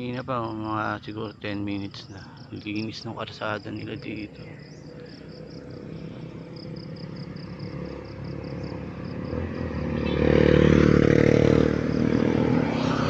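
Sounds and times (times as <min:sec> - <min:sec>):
insects chirping: 0:00.0 - 0:13.0
motor vehicle passing: 0:03.4 - 0:13.0.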